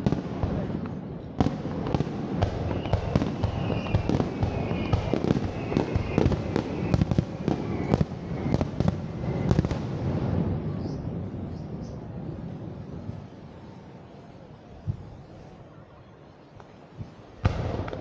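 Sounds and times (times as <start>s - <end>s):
fireworks shells bursting: 2.6s - 8.8s.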